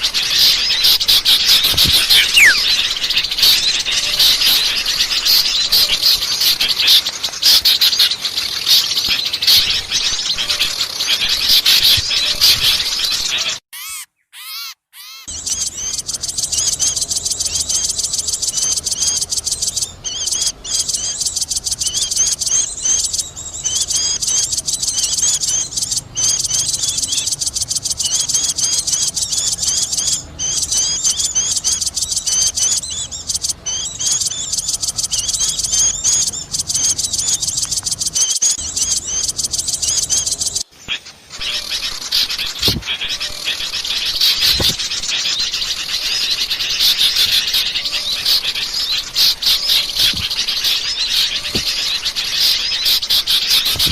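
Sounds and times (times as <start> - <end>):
small birds chirping chorus: 0.0 - 53.9.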